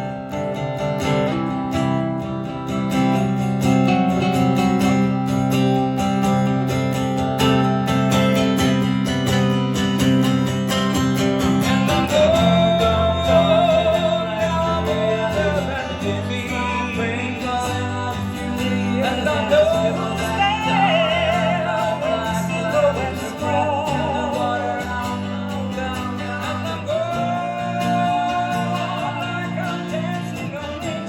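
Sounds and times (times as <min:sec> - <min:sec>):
acoustic guitars strumming: 0:00.0 - 0:31.0
wordless singing with vibrato: 0:09.6 - 0:31.0.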